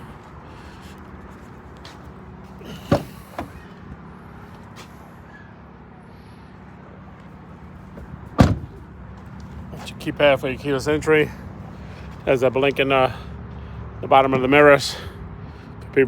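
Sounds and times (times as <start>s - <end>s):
pickup truck door slamming: 2.7s - 3.6s, 8.0s - 8.9s.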